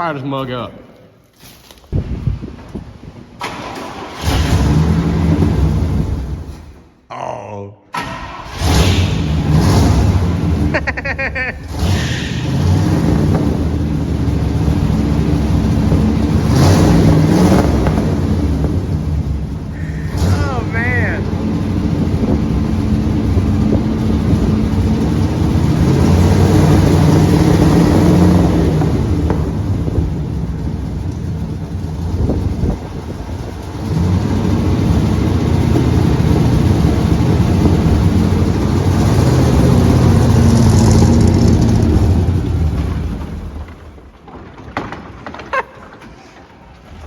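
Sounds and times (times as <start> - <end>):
truck engine running loud: 8.2 - 44.0.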